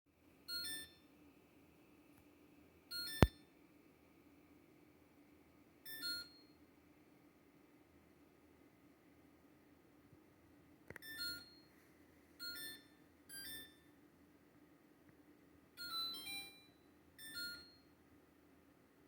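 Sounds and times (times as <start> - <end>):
refrigerator two-note electronic chirps: 12.4 - 13.9.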